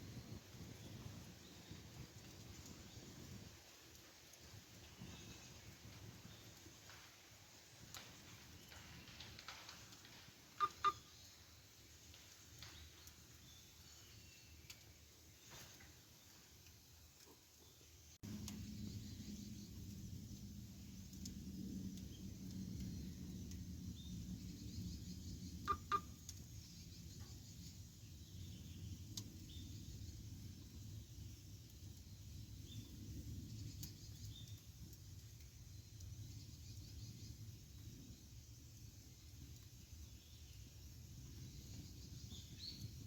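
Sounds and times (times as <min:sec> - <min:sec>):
loud fire pops: 0:00.0 - 0:13.7
campfire rumbling: 0:00.0 - 0:43.0
wood crackles: 0:00.0 - 0:43.0.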